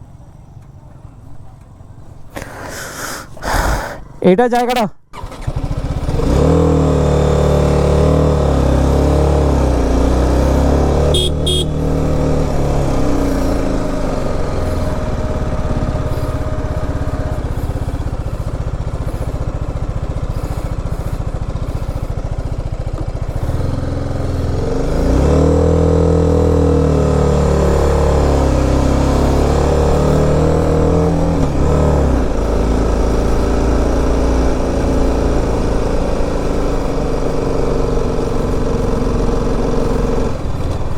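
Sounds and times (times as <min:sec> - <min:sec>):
motorcycle engine revving: 0:05.1 - 0:40.9
short double beep: 0:11.1 - 0:11.8.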